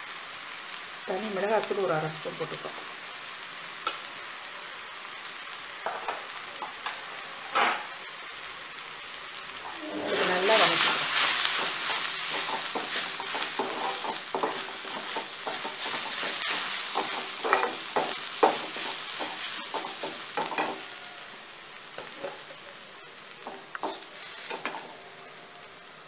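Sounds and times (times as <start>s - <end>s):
onions sizzling in oil: 0.0s - 26.0s
spatula scraping a pan: 9.6s - 21.0s, 23.4s - 25.0s.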